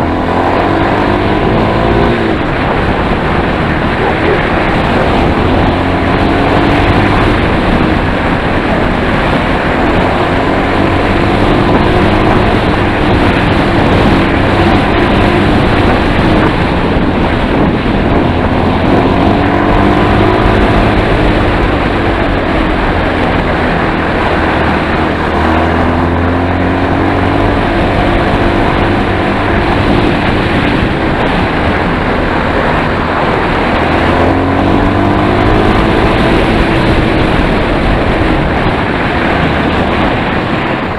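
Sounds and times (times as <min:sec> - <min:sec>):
motorcycle engine revving: 0:00.0 - 0:40.9
wind on microphone: 0:00.0 - 0:40.9.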